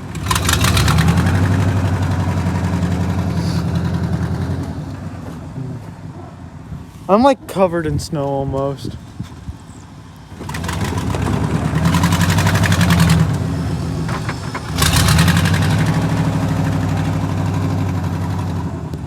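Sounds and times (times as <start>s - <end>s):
vehicle engine revving: 0.0s - 6.2s, 10.1s - 19.0s.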